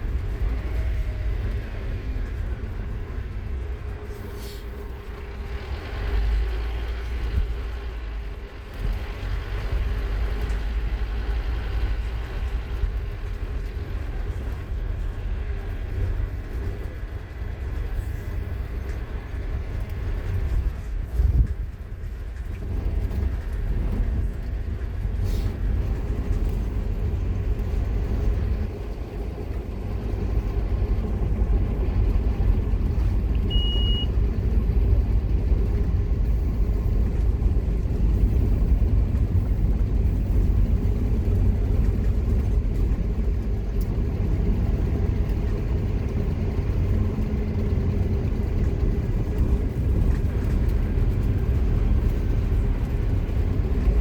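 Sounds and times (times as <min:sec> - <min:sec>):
bus diesel engine under load: 0:00.0 - 0:54.0
short high beep: 0:33.5 - 0:34.1.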